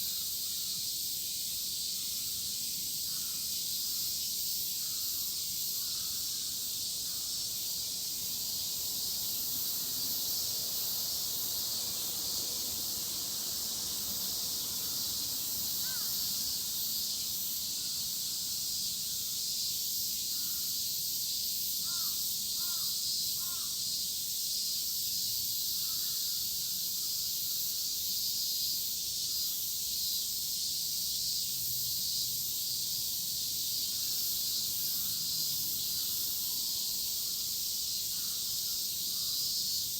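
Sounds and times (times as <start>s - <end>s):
cicadas shrilling: 0.0s - 39.9s
crow cawing: 15.8s - 16.2s, 21.8s - 23.8s.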